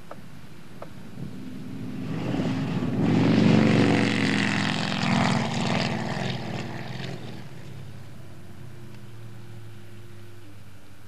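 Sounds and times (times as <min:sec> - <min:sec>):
car engine running hard: 0:00.0 - 0:11.0.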